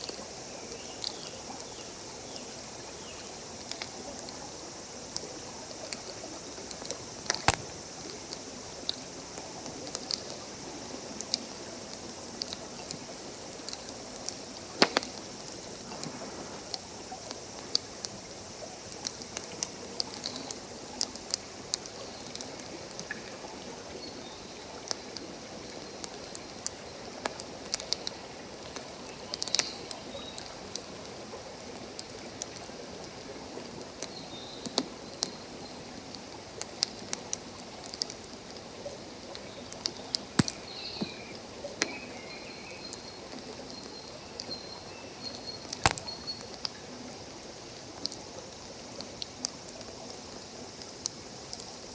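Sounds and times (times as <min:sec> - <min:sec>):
campfire crackling and popping: 0:05.1 - 0:10.4, 0:11.2 - 0:18.2, 0:39.3 - 0:42.0, 0:45.7 - 0:46.8
stream rushing: 0:12.6 - 0:17.8.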